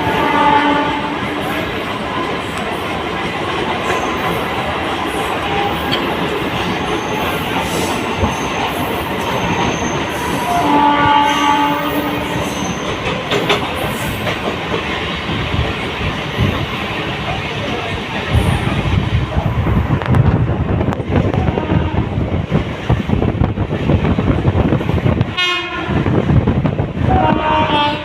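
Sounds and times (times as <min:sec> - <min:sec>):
train horn: 0:00.0 - 0:01.7, 0:05.4 - 0:06.1, 0:10.2 - 0:12.8, 0:21.5 - 0:22.2, 0:25.3 - 0:26.1, 0:27.0 - 0:28.0
train wheels on rails: 0:00.0 - 0:28.0.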